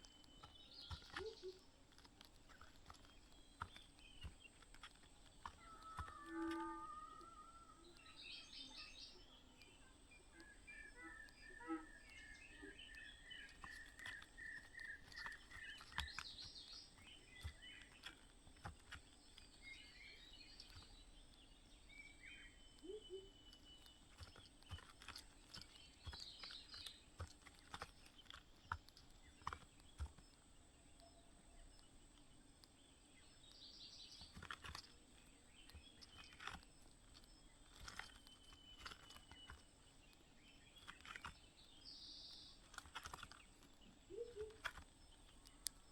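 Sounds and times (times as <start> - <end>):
light clicks and rustling: 12.8 - 21.5, 22.7 - 45.9
small bird chirps and whistles: 22.3 - 24.8, 44.1 - 44.8.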